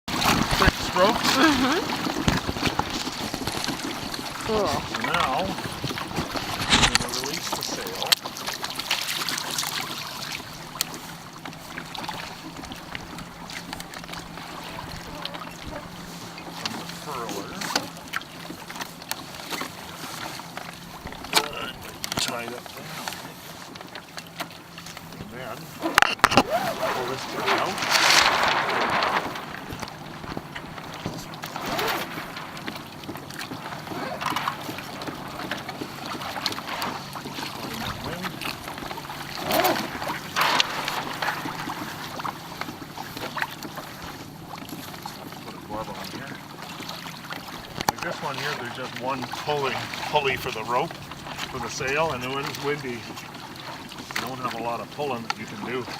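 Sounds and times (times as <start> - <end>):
water and wind noise: 0.0 - 55.9
rope and rigging rattles: 0.2 - 8.1, 25.8 - 42.4.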